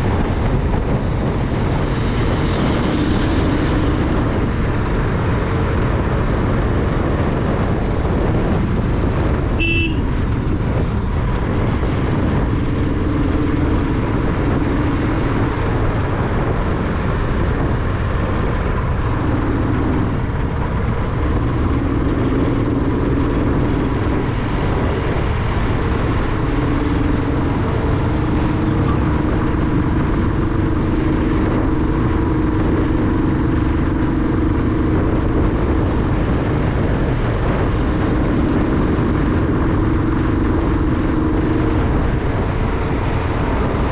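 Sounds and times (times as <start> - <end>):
motorcycle engine: 0.0 - 43.9
wind noise on microphone: 0.0 - 43.9.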